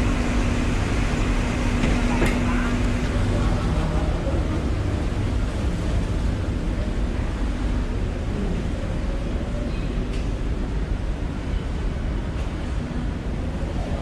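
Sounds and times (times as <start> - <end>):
water wash: 0.0 - 9.7
boat engine rumble: 0.0 - 14.0.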